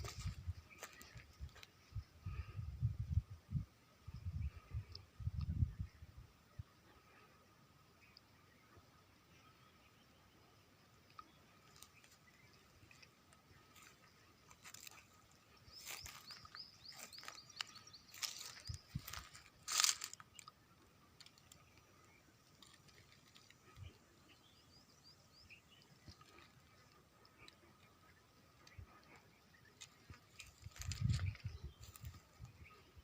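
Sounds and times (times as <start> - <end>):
footsteps crunching on stones: 0.0 - 1.3, 15.7 - 20.2
faint bird chirps: 0.0 - 33.0.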